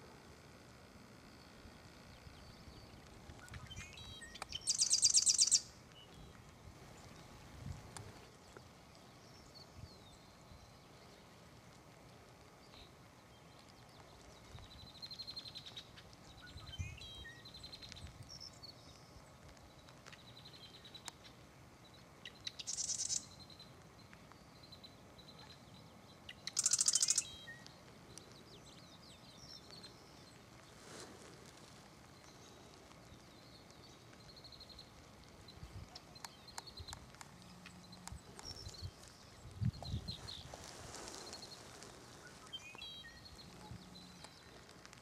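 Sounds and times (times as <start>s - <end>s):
harsh buzzy bird calls: 1.2s - 5.7s, 22.2s - 23.8s, 25.3s - 27.6s
birds trilling and chirping: 2.2s - 7.4s, 12.6s - 45.0s.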